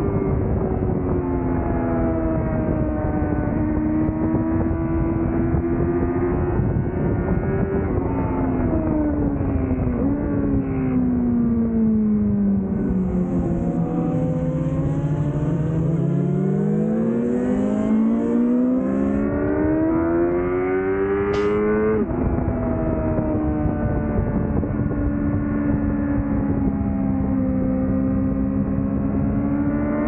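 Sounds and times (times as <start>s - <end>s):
motorcycle engine revving: 0.2s - 30.0s.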